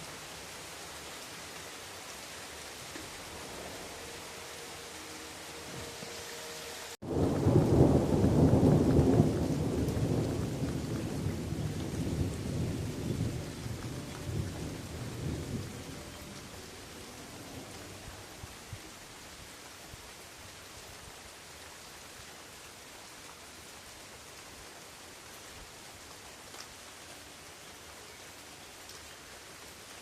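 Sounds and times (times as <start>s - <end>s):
steady rain: 0.0s - 30.0s
rolling thunder rumble: 7.0s - 18.8s.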